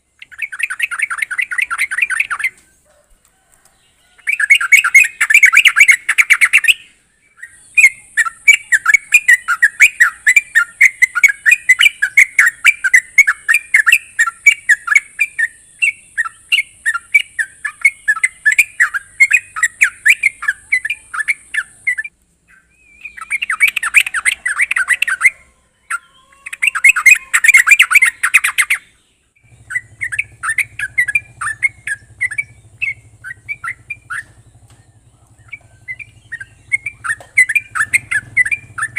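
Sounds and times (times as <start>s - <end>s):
bulbul singing bubbly chatter: 0.0s - 2.6s, 4.2s - 38.9s
low hum: 29.2s - 38.9s.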